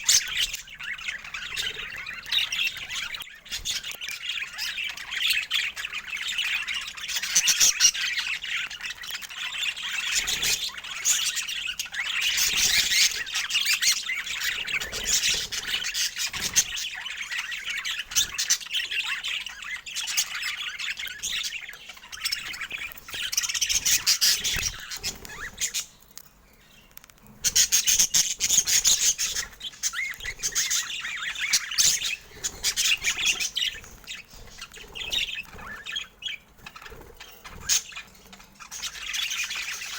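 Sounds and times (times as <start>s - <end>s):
budgerigars chattering and squawking: 0.0s - 26.1s, 26.7s - 39.9s.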